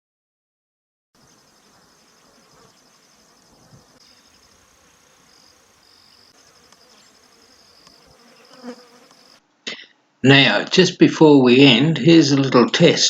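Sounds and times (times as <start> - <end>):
insect trilling: 1.2 - 9.4.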